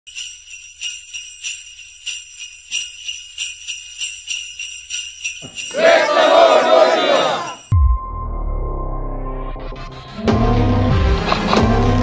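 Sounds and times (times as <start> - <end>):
sleigh bells jingling: 0.1 - 7.7.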